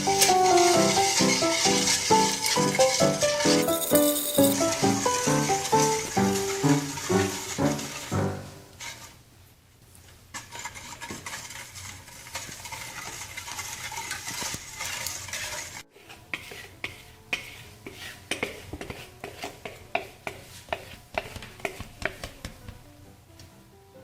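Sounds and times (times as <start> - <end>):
dough stirred in bowl: 0.0 - 9.3, 9.9 - 22.8
utensil knocking against bowl: 19.6 - 22.8.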